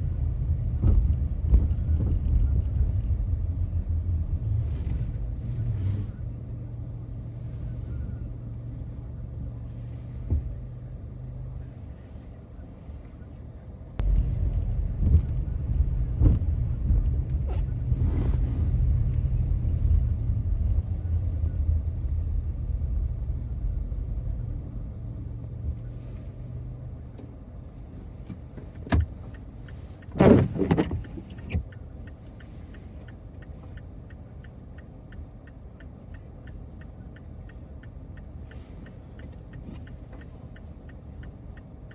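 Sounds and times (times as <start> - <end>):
car engine and road rumble: 0.0 - 41.9
turn signal ticking: 13.7 - 18.0, 18.6 - 41.9.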